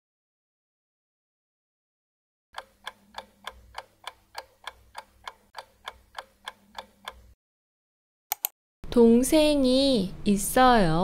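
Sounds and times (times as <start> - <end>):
clock ticking: 2.6 - 7.4
quick clicks: 8.3 - 8.5.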